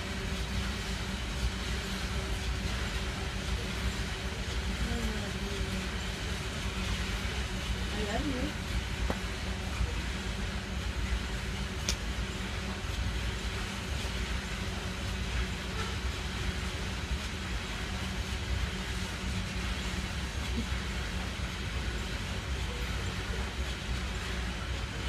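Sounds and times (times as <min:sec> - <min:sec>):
freight train rumbling past: 0:00.0 - 0:25.0
sharp click: 0:11.8 - 0:12.0.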